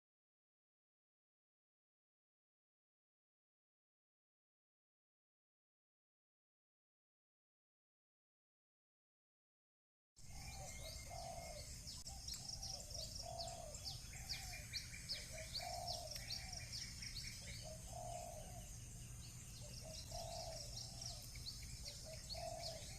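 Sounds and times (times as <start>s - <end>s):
dove cooing: 10.2s - 18.9s, 19.6s - 22.9s
small birds chirping: 10.2s - 22.9s.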